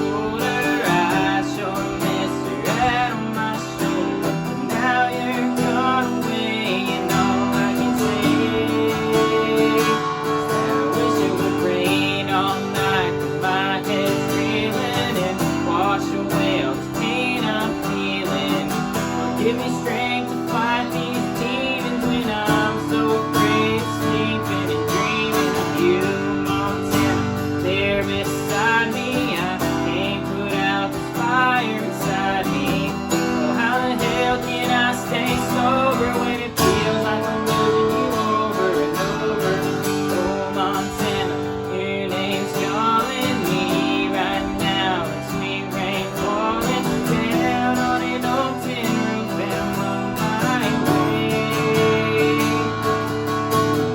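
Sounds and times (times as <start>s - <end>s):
person singing: 0.0s - 53.9s
strummed acoustic guitar: 0.0s - 53.9s.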